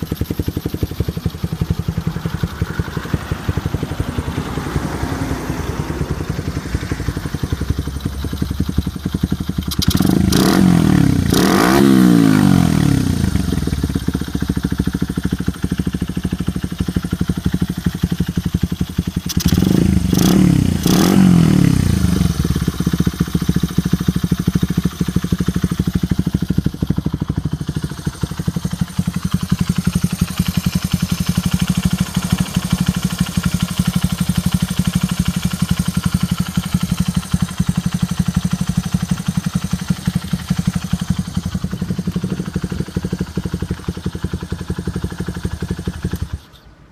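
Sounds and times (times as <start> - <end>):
engine throttle blips: 0.0 - 14.6
small engine idling: 0.0 - 46.9.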